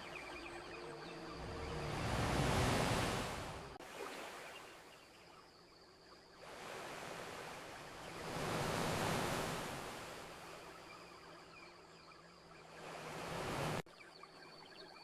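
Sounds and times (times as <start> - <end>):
ocean wave washing onto shore: 1.3 - 4.2, 6.5 - 10.6.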